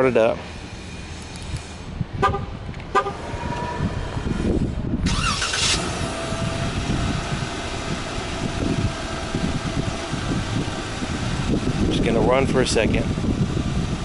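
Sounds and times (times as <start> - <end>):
car engine idling: 0.1 - 14.0
car horn toot: 2.2 - 3.2
engine starter cranking: 5.0 - 6.9.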